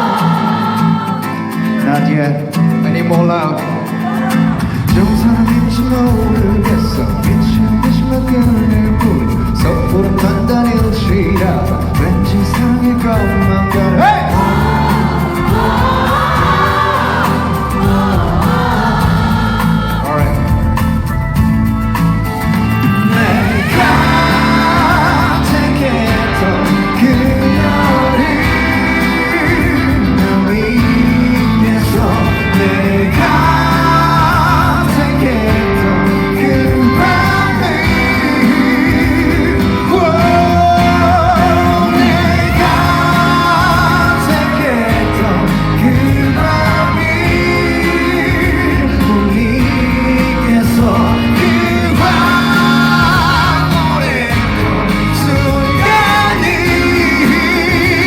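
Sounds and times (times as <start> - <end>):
person singing: 0.0 - 21.2, 22.8 - 58.0
band playing pop-rock: 0.0 - 58.0.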